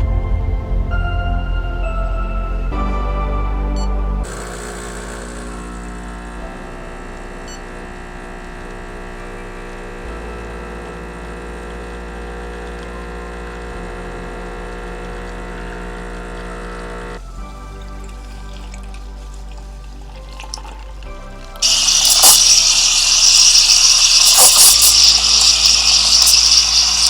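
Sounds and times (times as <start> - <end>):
espresso machine pump running: 4.2 - 17.3, 18.0 - 27.0.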